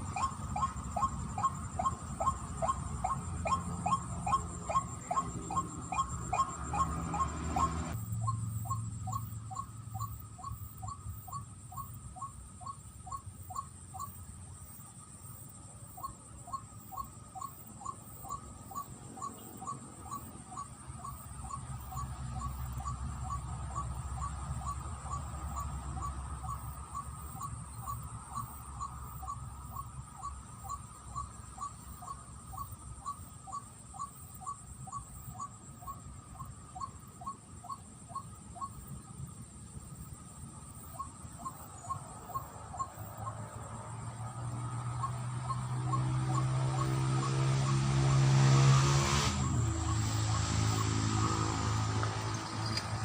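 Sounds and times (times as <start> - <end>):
waterhen calls: 0.0 - 8.0.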